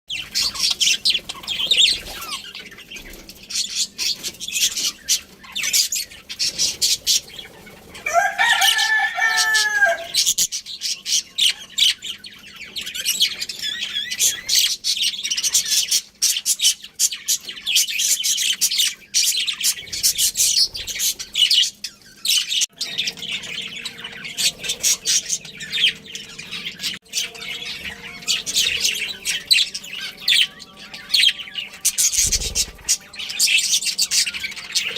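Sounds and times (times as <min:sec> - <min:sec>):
budgerigars chirping: 0:00.1 - 0:34.9
rooster crowing: 0:08.0 - 0:10.3.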